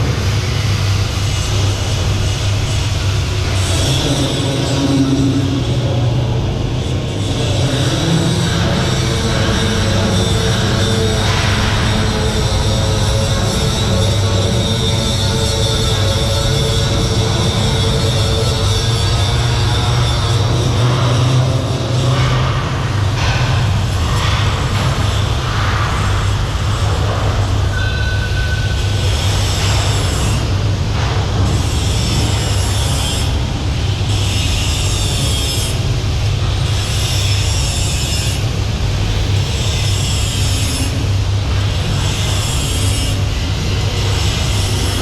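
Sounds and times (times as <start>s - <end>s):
engine room machinery roar: 0.0s - 45.0s.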